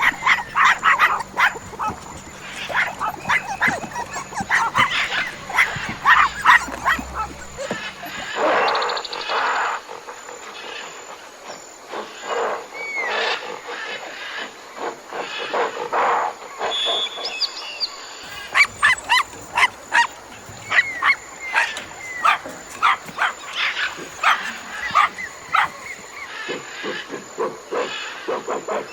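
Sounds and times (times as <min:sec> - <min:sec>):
dogs barking: 0:00.0 - 0:08.4, 0:18.3 - 0:26.3
dogs yipping: 0:00.0 - 0:08.4, 0:18.2 - 0:26.3.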